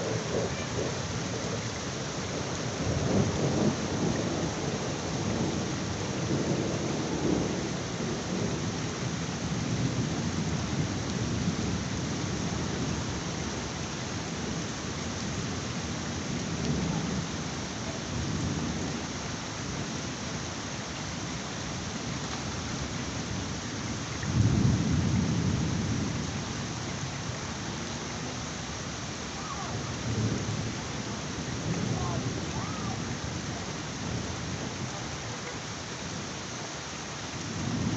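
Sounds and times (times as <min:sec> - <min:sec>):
thunder rumbling: 0:00.0 - 0:13.8, 0:14.4 - 0:19.1, 0:24.2 - 0:28.3, 0:29.4 - 0:35.3, 0:37.4 - 0:37.9
heavy rain: 0:00.0 - 0:37.9.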